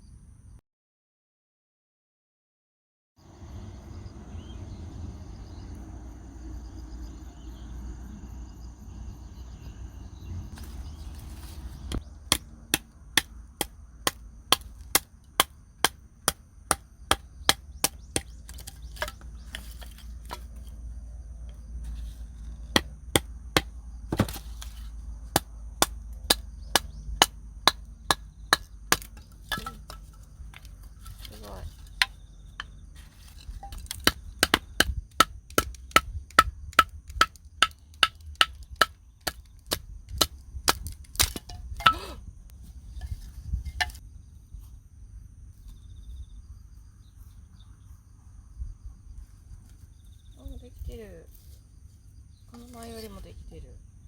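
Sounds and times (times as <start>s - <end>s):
wind rumble on microphone: 3.4s - 12.3s, 33.4s - 51.4s
axe chopping wood: 10.6s - 20.7s, 21.9s - 42.2s, 43.0s - 44.0s.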